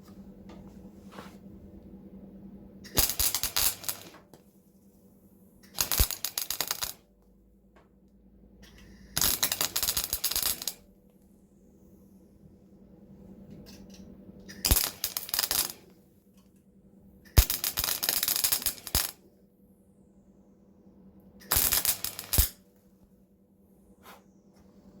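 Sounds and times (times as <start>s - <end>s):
welder crackling: 2.9s - 4.2s, 5.8s - 7.0s, 9.2s - 10.8s, 14.6s - 15.8s, 17.4s - 19.2s, 21.5s - 22.6s.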